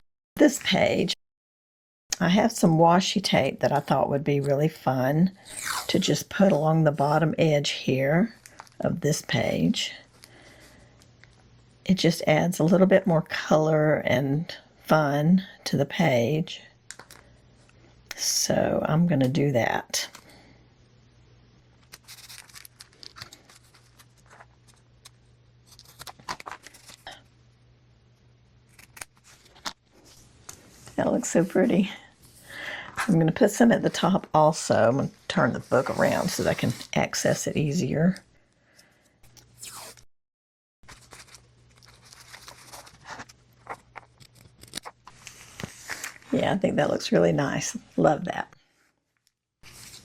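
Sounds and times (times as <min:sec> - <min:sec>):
tape rustling and crinkling: 0:21.8 - 0:27.2, 0:28.7 - 0:31.0, 0:40.8 - 0:46.3
tape being torn: 0:28.7 - 0:29.8.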